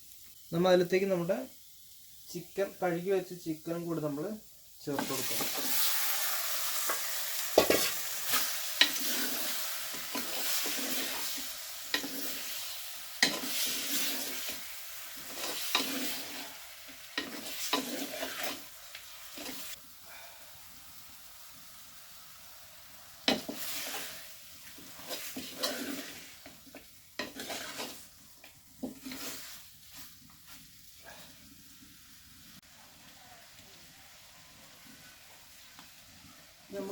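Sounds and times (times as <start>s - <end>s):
chicken sizzling in hot oil: 0.0s - 36.9s
spoon scraping a pan: 5.0s - 19.8s, 23.3s - 28.1s, 28.8s - 30.6s.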